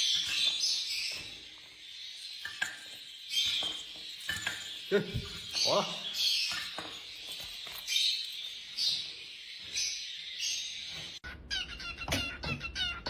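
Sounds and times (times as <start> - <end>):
parrot squawking: 11.2 - 13.0.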